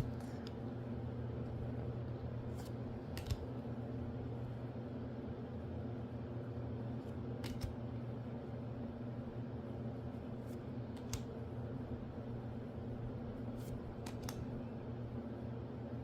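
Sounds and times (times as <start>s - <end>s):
steady low hum: 0.0s - 16.0s
cards clicking when handled: 2.6s - 3.4s, 7.4s - 7.8s, 11.0s - 11.3s, 14.0s - 14.5s.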